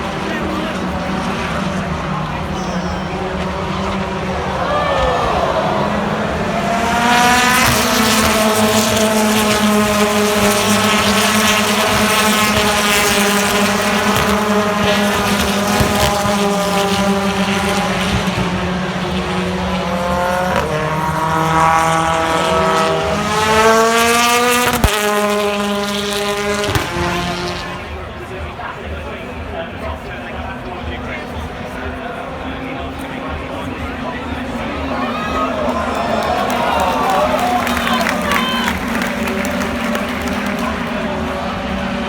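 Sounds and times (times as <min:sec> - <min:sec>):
racing car engine: 0:00.0 - 0:42.0
gear change: 0:01.1 - 0:27.8.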